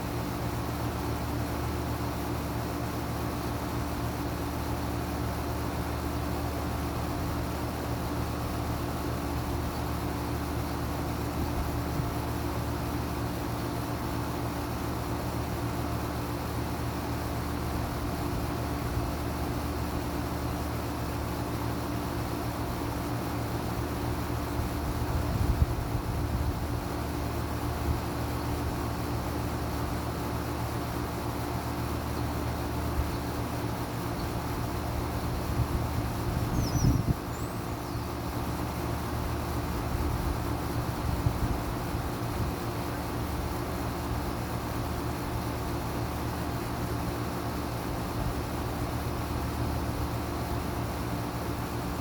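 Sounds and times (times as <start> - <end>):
air conditioner unit humming: 0.0 - 52.0
fan noise: 0.0 - 52.0
faint bird chirps: 36.4 - 38.2.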